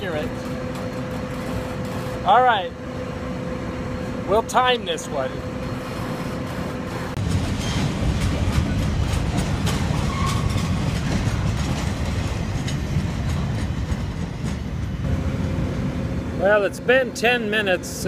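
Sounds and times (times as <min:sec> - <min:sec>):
freight train rumbling: 0:00.0 - 0:18.0
wheels clicking over rail joints: 0:06.5 - 0:15.0.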